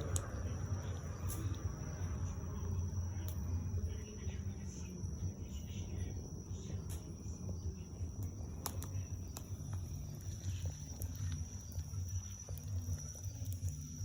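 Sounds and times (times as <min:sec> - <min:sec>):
high-pitched insect drone: 0:00.0 - 0:14.0
bonfire crackling: 0:04.8 - 0:14.0.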